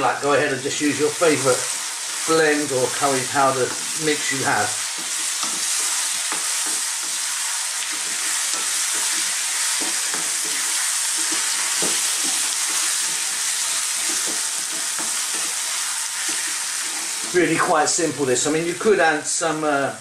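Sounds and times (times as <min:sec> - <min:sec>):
potatoes sizzling in hot oil: 0:00.0 - 0:20.0
wooden spatula scraping pan: 0:01.4 - 0:18.0.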